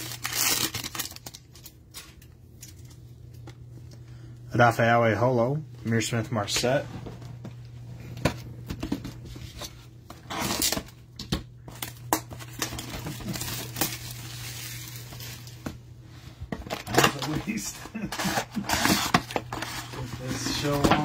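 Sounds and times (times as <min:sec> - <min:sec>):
card pack wrapper tearing: 0:00.0 - 0:02.2, 0:11.7 - 0:15.5
wrapper crinkling: 0:00.0 - 0:03.0, 0:11.7 - 0:15.6
steady low hum: 0:00.0 - 0:21.0.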